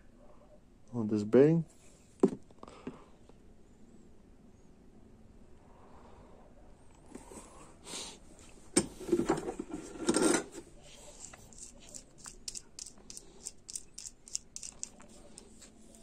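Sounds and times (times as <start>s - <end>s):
parts rubbing and clattering: 8.8s - 16.0s
metal parts knocking: 11.5s - 15.1s.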